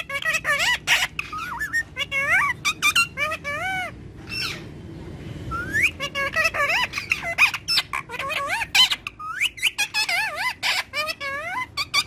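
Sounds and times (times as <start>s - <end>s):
parrot squawking and chattering: 0.0s - 4.8s, 5.5s - 12.0s.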